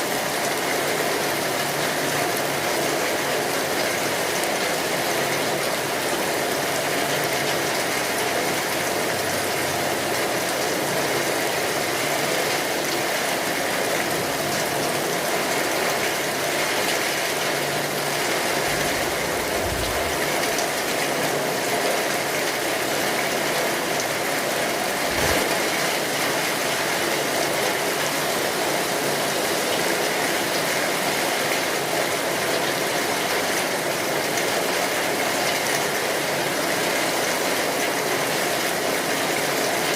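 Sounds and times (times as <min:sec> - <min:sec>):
rain falling: 0:00.0 - 0:39.9
low thumps: 0:18.6 - 0:20.6.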